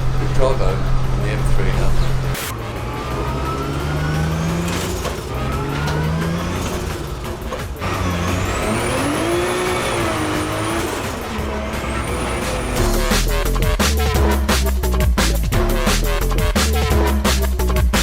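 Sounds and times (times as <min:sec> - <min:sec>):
high whine: 0:00.0 - 0:14.4
car engine accelerating: 0:00.0 - 0:18.0.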